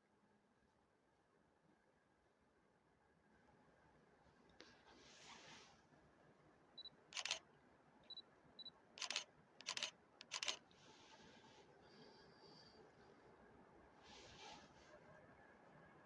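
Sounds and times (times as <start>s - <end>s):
camera shutter firing: 7.2s - 7.4s, 9.0s - 10.6s.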